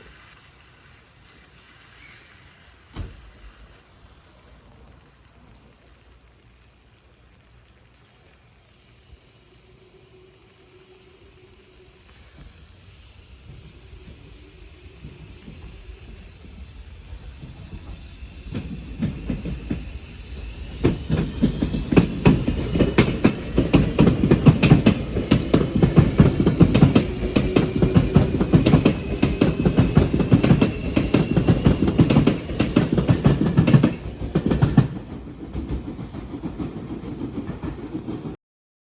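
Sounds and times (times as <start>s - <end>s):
faint whine: 0.0s - 32.1s
train wheels clattering: 1.2s - 4.1s, 12.0s - 38.4s.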